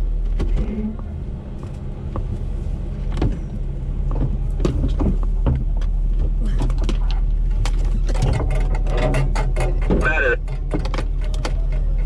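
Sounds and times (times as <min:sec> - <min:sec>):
engine idling: 0:00.0 - 0:12.0
knocks and clicks: 0:04.1 - 0:12.0.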